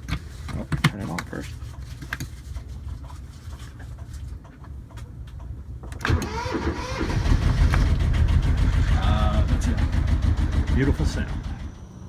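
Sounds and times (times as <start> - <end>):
engine starter cranking: 6.0 - 12.0
boat engine running: 7.4 - 12.0.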